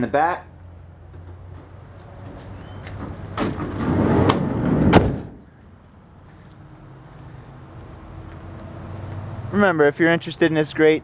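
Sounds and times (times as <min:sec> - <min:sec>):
van sliding door rolling: 0:01.2 - 0:05.8
door banging against stop: 0:02.6 - 0:05.5.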